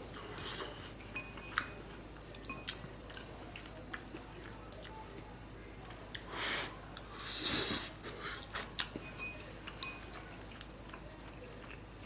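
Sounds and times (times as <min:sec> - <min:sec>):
chewing: 0:00.0 - 0:12.0.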